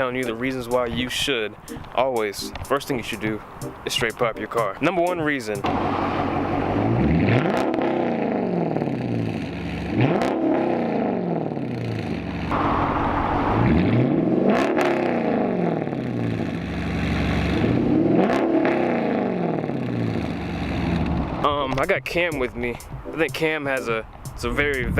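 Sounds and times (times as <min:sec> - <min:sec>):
exhaust cracks: 0:00.0 - 0:24.9
car engine revving: 0:05.6 - 0:21.5.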